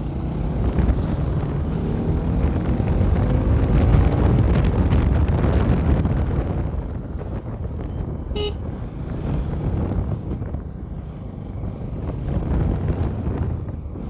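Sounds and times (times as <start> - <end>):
motorcycle engine accelerating: 0.0 - 7.8
wind rushing over microphone: 0.0 - 14.0.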